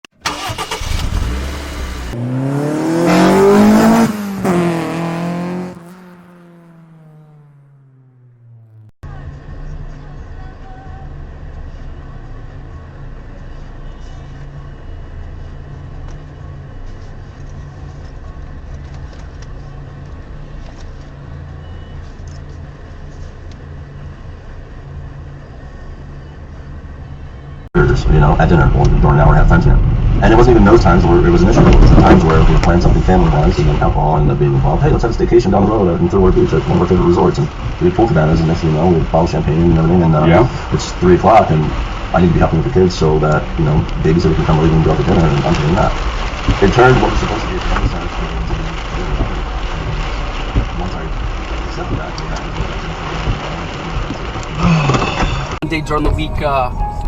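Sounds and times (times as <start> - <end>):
car engine accelerating: 0.0 - 57.0
rough noisy rumble: 22.1 - 57.0.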